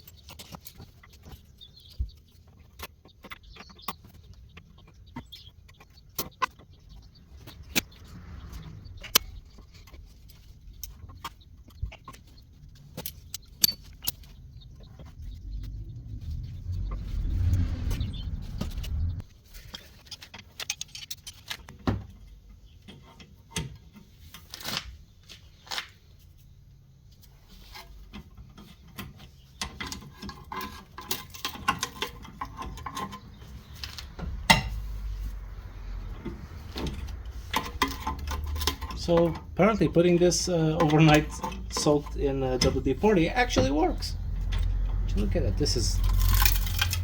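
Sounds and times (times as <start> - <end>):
low rumble: 6.7 - 11.2, 14.4 - 19.3, 33.2 - 47.0
hand tools clicking on metal: 46.0 - 47.0.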